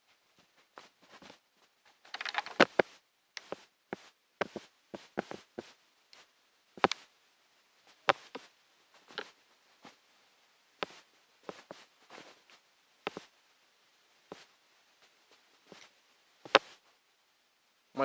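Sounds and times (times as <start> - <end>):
rustling scrape: 10.8 - 13.3.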